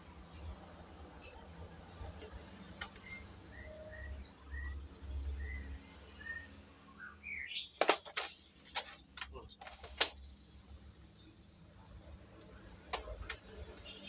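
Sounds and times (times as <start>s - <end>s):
small bird chirping: 0.0s - 7.8s.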